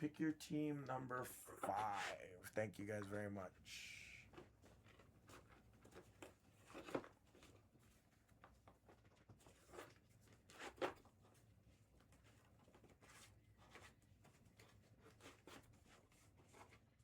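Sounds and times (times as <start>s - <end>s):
faint rustles and knocks: 4.2s - 17.0s.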